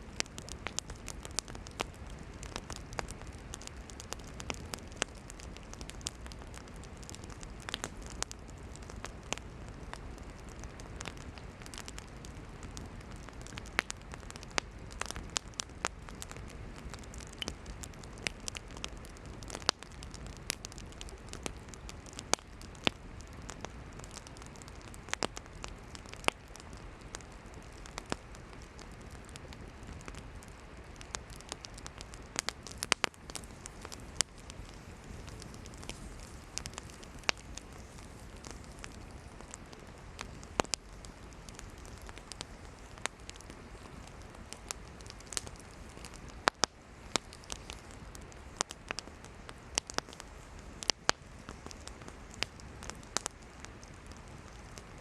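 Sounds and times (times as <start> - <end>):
hiss of flame: 0.0 - 55.0.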